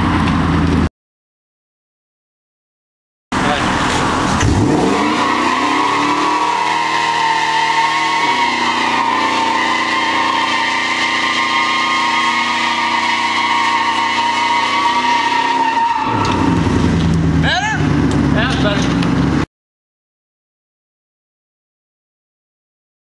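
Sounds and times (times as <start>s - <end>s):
tires squealing: 3.4s - 19.4s
engine at high revs: 3.4s - 19.5s.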